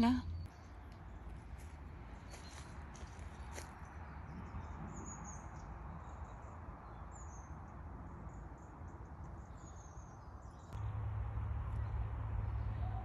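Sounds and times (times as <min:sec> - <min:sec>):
low rumble: 0:10.8 - 0:13.0.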